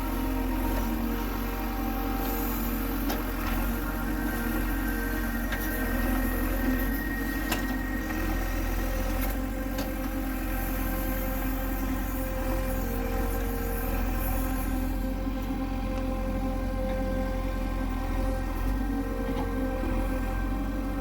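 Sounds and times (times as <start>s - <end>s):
heavy machine diesel engine running: 0.0s - 21.0s.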